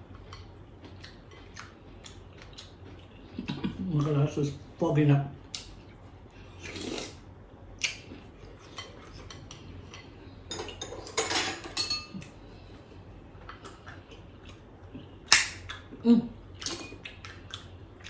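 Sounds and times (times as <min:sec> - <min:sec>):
spoon clinking against bowl: 0:10.5 - 0:12.2.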